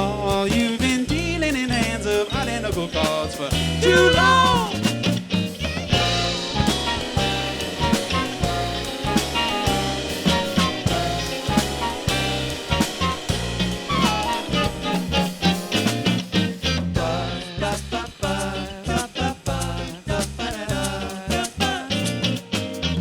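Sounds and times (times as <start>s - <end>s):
person singing: 0.0s - 4.8s
live band playing: 0.0s - 19.7s.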